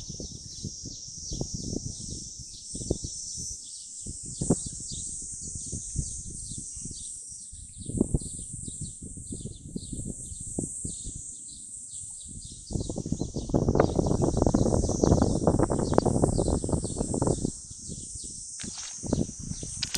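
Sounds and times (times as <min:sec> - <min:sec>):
insects chirping: 0:00.0 - 0:19.9
low clicks and rustles: 0:18.6 - 0:19.9.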